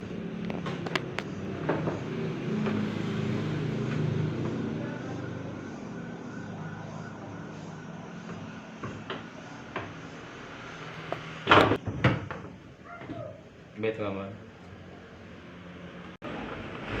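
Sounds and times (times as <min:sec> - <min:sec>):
sharp clicks and knocks: 0:00.4 - 0:02.0.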